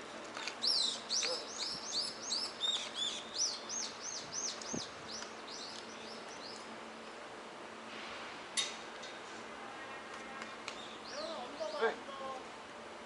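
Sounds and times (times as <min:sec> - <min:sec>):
bird chirping rapidly: 0:00.6 - 0:06.6.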